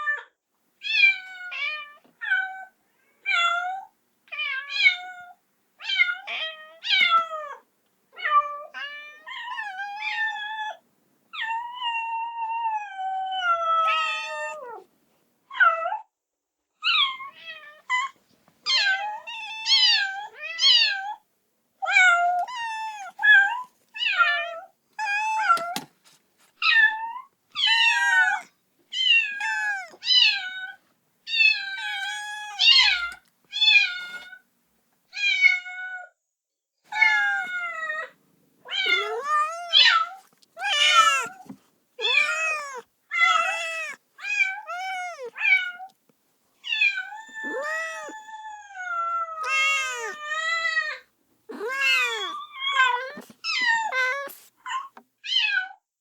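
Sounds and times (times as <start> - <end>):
kitten meowing: 21.9 - 25.9, 27.6 - 30.6, 31.3 - 34.2, 36.9 - 37.8, 38.7 - 45.9, 46.7 - 48.3, 49.4 - 55.0.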